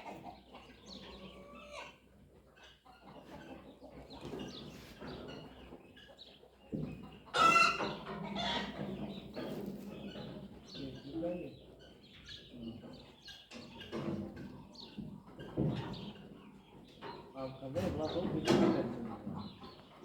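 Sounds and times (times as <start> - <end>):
chicken drawn-out call: 0.0 - 2.1, 7.3 - 8.9
chickens clucking: 0.0 - 20.0.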